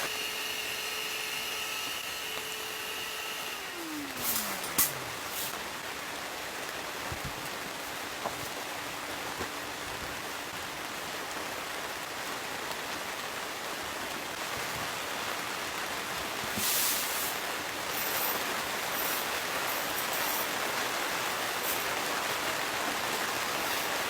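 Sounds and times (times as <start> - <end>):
heavy rain falling: 3.6 - 24.0.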